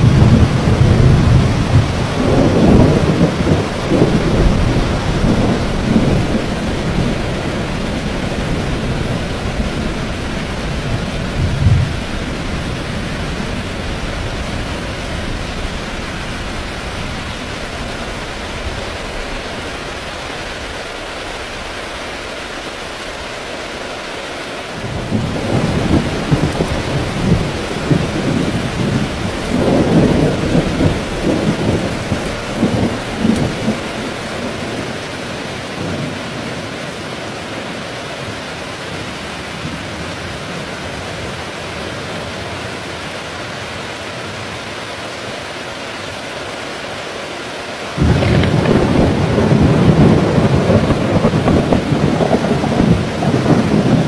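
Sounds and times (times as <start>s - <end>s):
thunder rumbling: 0.0s - 21.8s, 24.8s - 36.7s, 48.0s - 54.0s
heavy rain falling: 0.0s - 54.0s.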